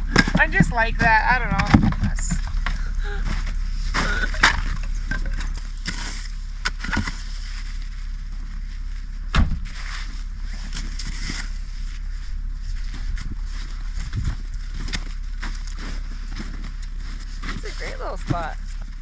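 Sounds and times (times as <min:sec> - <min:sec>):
steady low rumble: 0:00.0 - 0:19.0
footsteps crunching in snow: 0:07.1 - 0:19.0.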